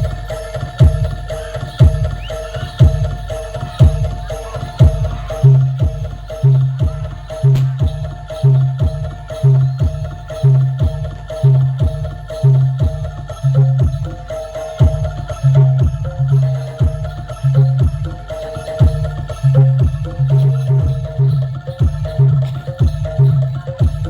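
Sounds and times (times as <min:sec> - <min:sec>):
heavy drum beats: 0:00.0 - 0:24.0
booming low tone: 0:07.6 - 0:08.8.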